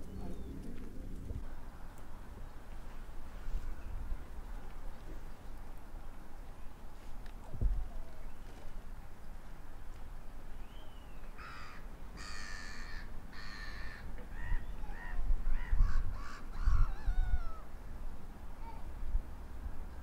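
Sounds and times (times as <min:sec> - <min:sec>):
wind rumbling on microphone: 0:00.0 - 0:20.0
birds cawing: 0:11.4 - 0:17.7.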